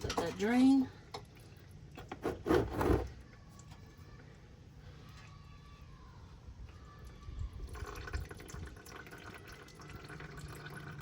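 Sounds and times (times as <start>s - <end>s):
oil trickling into a drain pan: 7.6s - 11.0s.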